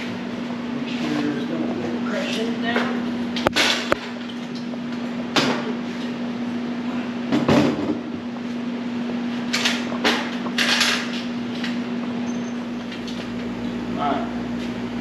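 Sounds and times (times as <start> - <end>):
steady hum: 0.0 - 15.0
metal parts clunking: 10.6 - 11.7.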